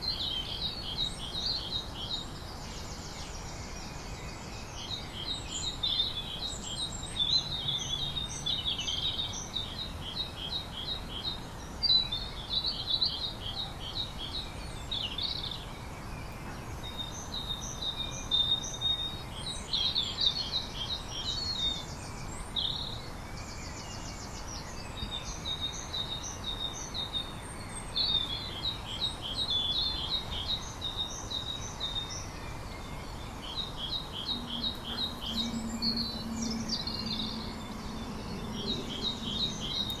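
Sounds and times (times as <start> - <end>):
songbird chirping: 0.0 - 40.0
steady low hiss: 28.3 - 40.0.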